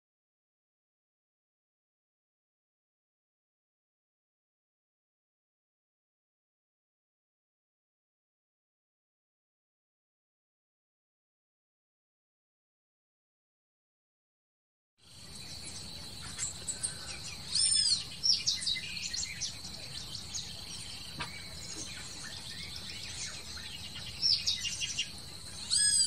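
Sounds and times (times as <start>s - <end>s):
birds chirping and calling: 15.1s - 26.0s.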